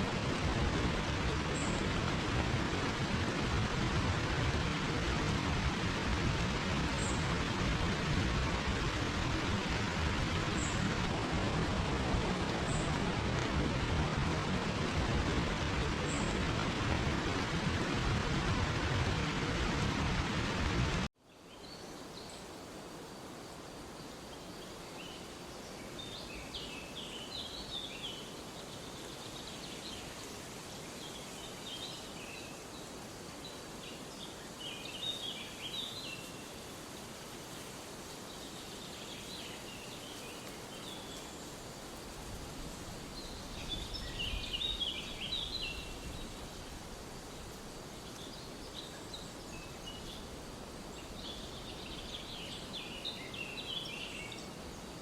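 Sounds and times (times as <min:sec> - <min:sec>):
steady background hiss: 0:00.0 - 0:55.0
small birds chirping: 0:37.5 - 0:55.0.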